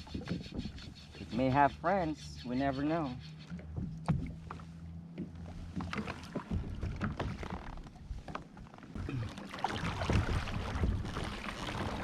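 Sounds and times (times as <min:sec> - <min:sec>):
water lapping at hull: 0:00.0 - 0:12.0
knocks and taps on kayak: 0:03.6 - 0:07.6.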